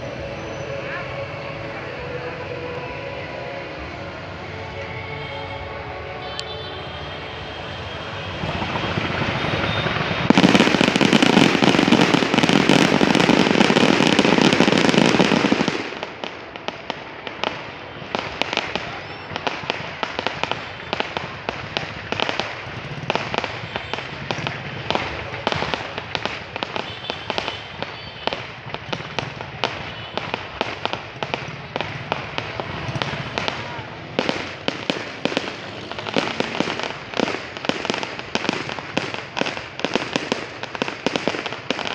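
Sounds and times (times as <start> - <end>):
fireworks crackling and popping: 0.0 - 41.9.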